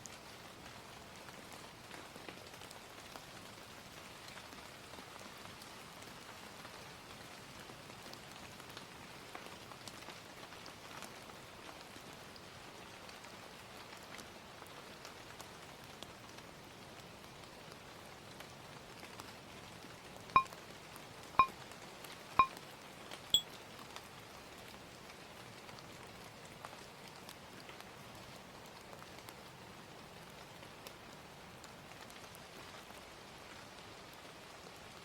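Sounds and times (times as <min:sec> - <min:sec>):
steady rain: 0:00.0 - 0:20.3, 0:23.9 - 0:35.0.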